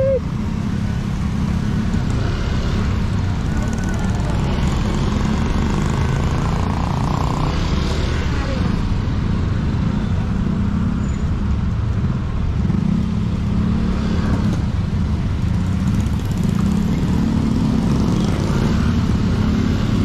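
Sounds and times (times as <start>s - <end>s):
motorcycle engine running: 0.0s - 8.8s, 14.7s - 20.0s.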